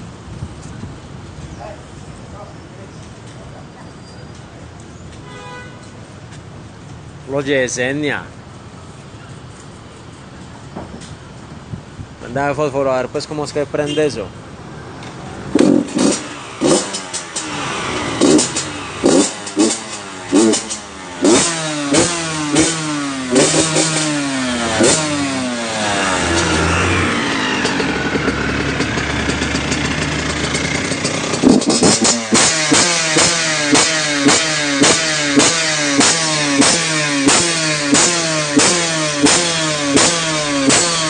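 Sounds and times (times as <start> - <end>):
motocross engine revving: 15.4 - 41.0.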